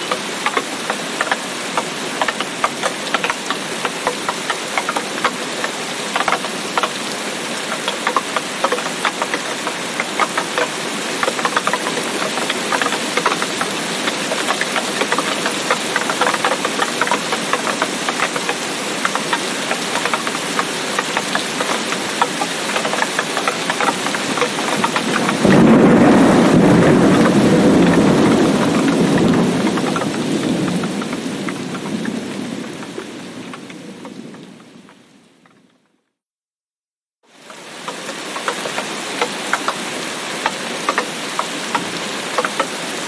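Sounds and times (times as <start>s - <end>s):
heavy rain: 0.0s - 35.8s, 37.3s - 43.0s
thunder rumbling: 23.6s - 35.0s.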